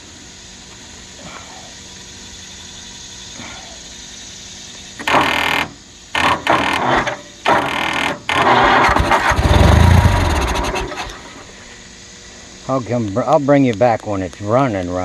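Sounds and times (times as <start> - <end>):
engine cranking without starting: 5.0 - 11.5.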